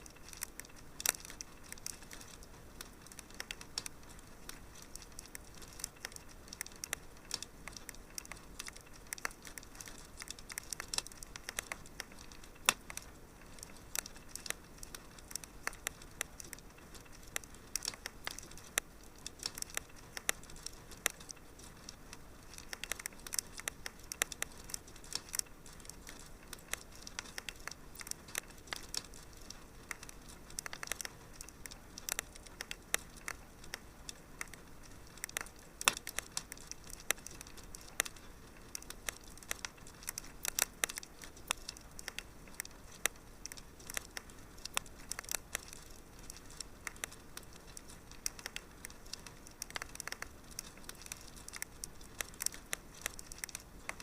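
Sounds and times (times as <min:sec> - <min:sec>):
soft steady fire hiss: 0:00.0 - 0:54.0
wood fire pops and snaps: 0:00.0 - 0:54.0.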